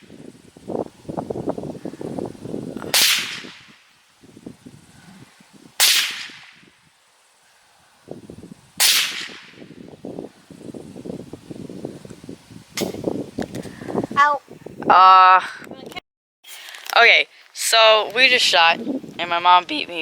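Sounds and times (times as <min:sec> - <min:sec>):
gunshots: 0:02.9 - 0:03.7, 0:05.8 - 0:06.6, 0:08.8 - 0:09.6.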